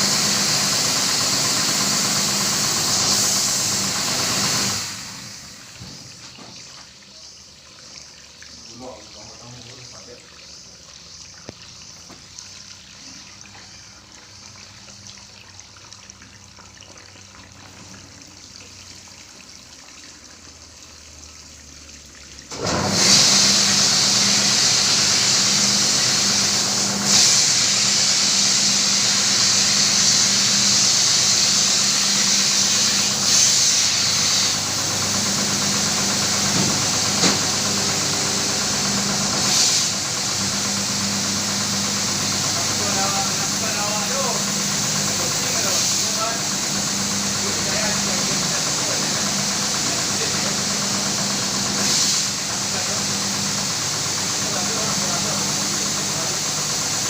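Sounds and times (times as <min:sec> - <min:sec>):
loud hiss: 0:00.0 - 0:06.0, 0:22.6 - 0:57.0
carpet-washing machine humming: 0:00.0 - 0:57.0.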